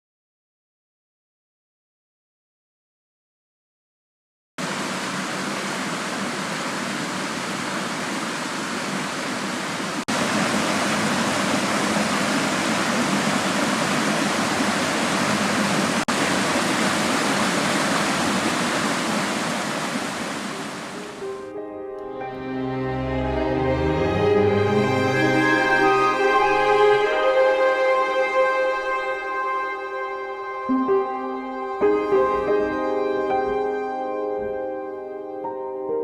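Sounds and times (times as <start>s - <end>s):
waterfall rushing: 4.6s - 21.5s.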